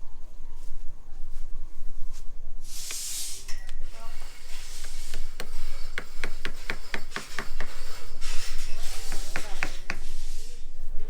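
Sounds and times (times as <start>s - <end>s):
hissing noise: 2.6s - 11.0s
hammer blows: 2.9s - 10.6s.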